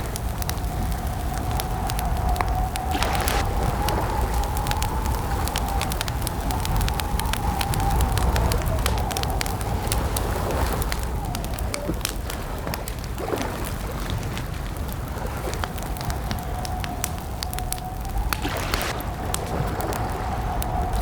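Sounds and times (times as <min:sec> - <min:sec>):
campfire crackling and popping: 0:00.0 - 0:21.0
wavering whistling tone: 0:01.3 - 0:12.0, 0:16.5 - 0:21.0.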